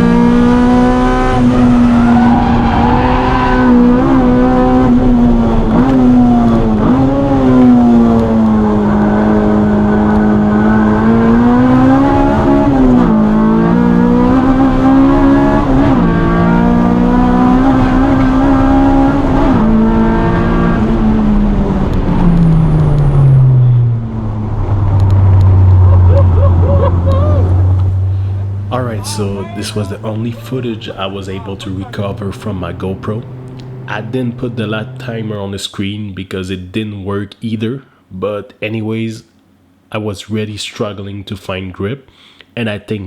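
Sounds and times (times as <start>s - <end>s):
car engine revving on track: 0.0s - 35.4s.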